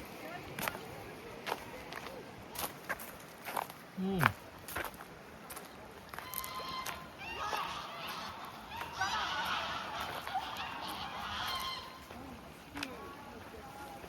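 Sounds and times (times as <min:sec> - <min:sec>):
geese honking: 0:06.2 - 0:12.2.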